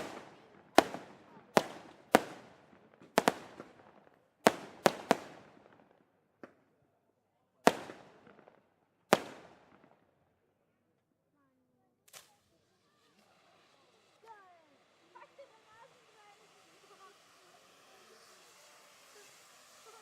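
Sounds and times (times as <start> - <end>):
fireworks bangs with echo: 0.0 - 6.6, 7.6 - 10.1.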